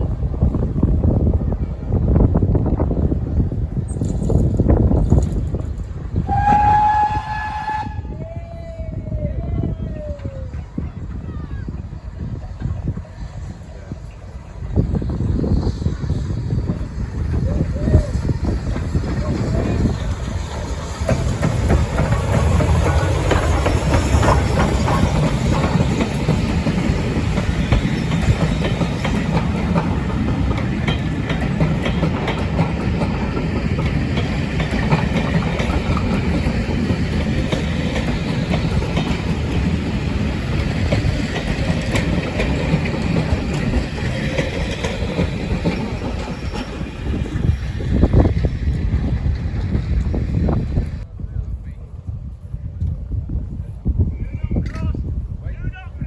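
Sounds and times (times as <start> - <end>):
train rumbling on rails: 0.0 - 56.0
wheels clicking over track: 17.3 - 51.0.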